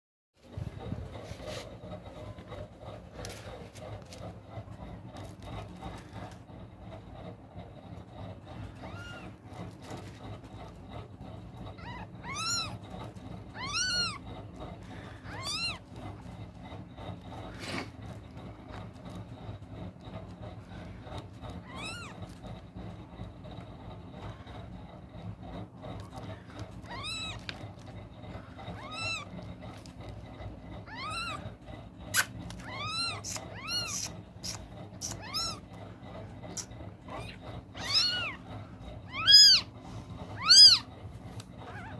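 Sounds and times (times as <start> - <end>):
kitten mewing: 8.8 - 9.4, 11.7 - 14.3, 15.2 - 16.0, 21.6 - 22.2, 26.8 - 27.5, 28.6 - 29.4, 30.8 - 35.7, 36.5 - 39.8, 40.4 - 40.9, 41.6 - 41.9.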